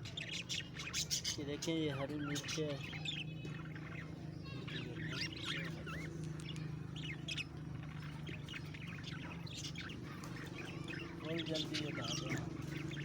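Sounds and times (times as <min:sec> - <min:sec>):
parrots chirping: 0:00.0 - 0:13.0.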